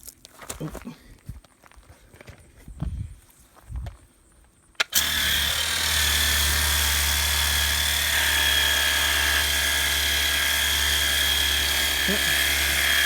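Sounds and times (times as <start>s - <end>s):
pressure washer motor whining: 4.9s - 13.0s.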